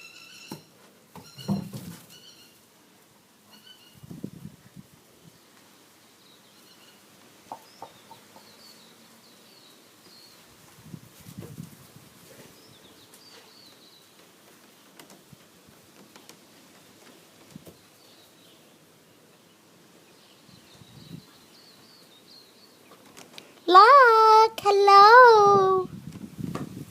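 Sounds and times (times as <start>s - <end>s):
soft knocks and rustles: 0.8s - 2.2s
faint birds chirping: 5.1s - 10.9s, 12.2s - 25.9s.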